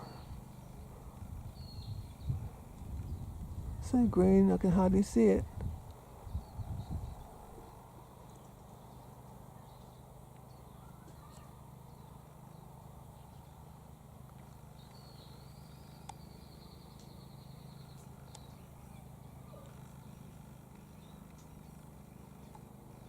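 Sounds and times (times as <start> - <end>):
bird trill: 0.0 - 0.8
low hum: 0.0 - 10.8.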